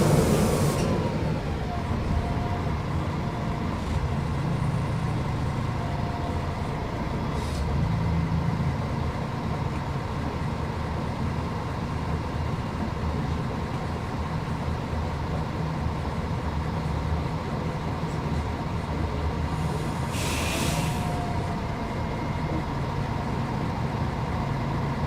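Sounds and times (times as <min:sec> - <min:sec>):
bus diesel engine running: 0:00.0 - 0:25.0
brief hiss: 0:19.6 - 0:21.3.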